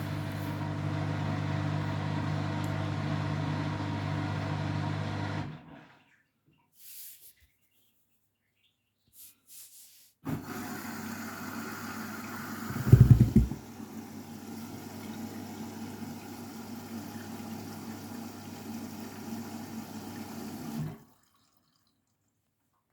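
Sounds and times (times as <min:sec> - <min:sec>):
washing machine hum: 0:00.0 - 0:06.2, 0:10.3 - 0:21.6.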